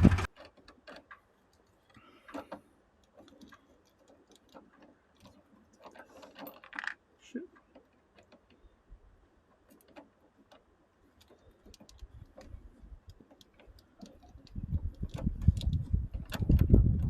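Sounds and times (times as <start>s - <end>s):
starter motor rattling rumble: 0.0s - 0.3s.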